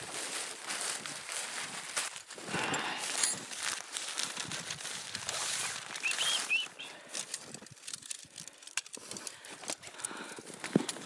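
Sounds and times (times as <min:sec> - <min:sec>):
tent fabric rustling and flapping: 0:00.0 - 0:06.7.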